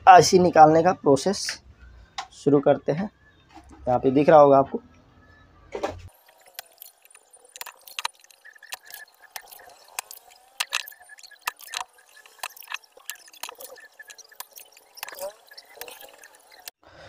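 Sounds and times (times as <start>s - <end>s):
solder crackling and sizzling: 6.1s - 16.8s.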